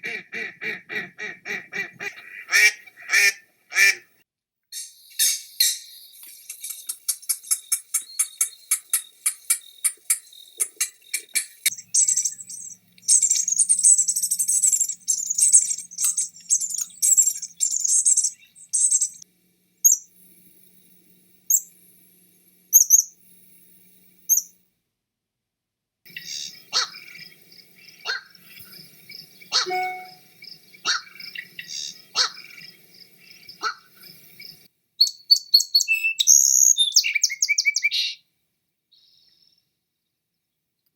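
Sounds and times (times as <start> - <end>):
high twittering birdsong: 4.8 - 24.6, 26.1 - 38.2, 38.9 - 40.6
fast repeated bird notes: 6.5 - 19.2, 26.1 - 34.6
lower bird calls: 7.9 - 19.2, 26.1 - 38.2
short high bird chirps: 29.5 - 32.4.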